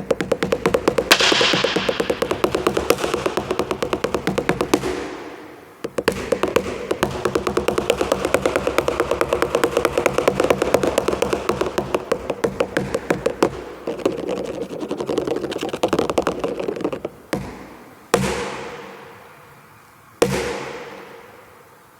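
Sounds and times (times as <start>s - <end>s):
hand drumming on watermelon: 0.0s - 17.7s
hard slaps on melon echoing: 1.0s - 5.5s.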